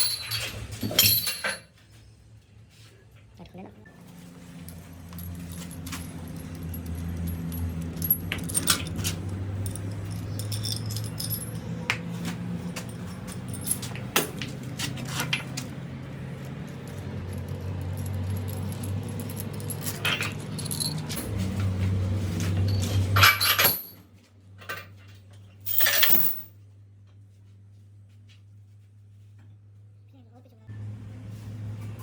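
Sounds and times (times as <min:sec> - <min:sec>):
hand tools clinking: 0:00.0 - 0:01.7, 0:04.5 - 0:21.7, 0:22.4 - 0:24.0, 0:25.6 - 0:26.5.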